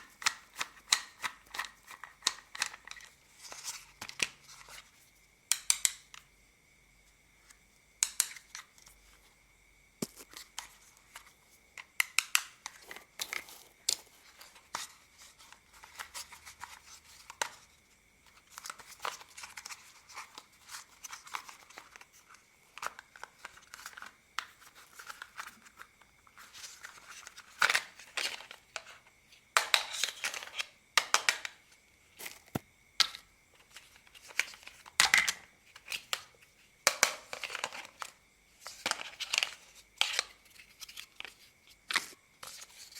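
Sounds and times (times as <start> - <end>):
plastic toy parts clicking: 0.1 - 3.1, 5.5 - 6.2, 8.0 - 8.6.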